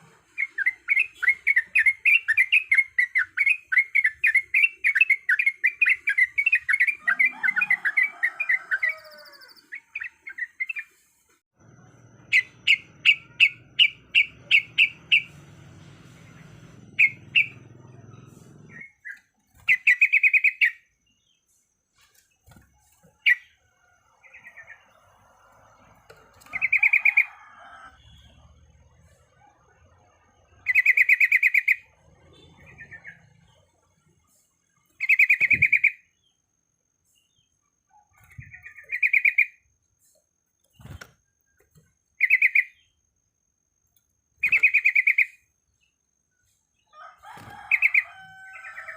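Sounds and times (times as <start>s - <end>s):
low hum: 11.6s - 18.9s
bird chirping in quick runs: 12.2s - 21.2s, 40.6s - 43.0s, 44.4s - 45.3s.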